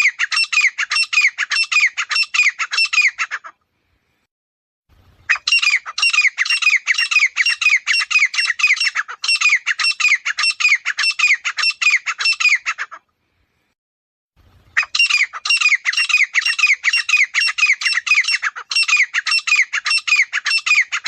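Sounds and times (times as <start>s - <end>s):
bird calling shrill harsh notes: 0.0s - 3.5s, 5.2s - 13.0s, 14.7s - 21.0s.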